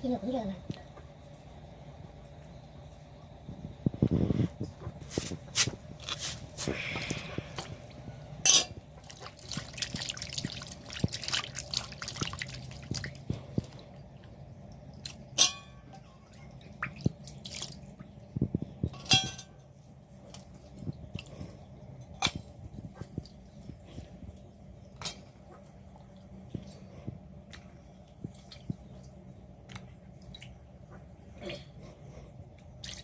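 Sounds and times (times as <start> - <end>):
low steady hum: 0.0 - 33.0
water dripping and splashing: 8.8 - 19.0, 27.4 - 30.8, 32.6 - 33.0.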